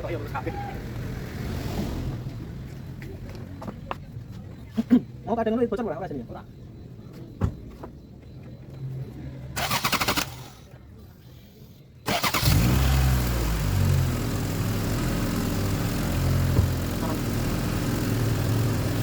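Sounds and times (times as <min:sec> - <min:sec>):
car engine starter cranking: 0:09.6 - 0:10.7, 0:12.0 - 0:19.0
car engine idling: 0:09.6 - 0:19.0.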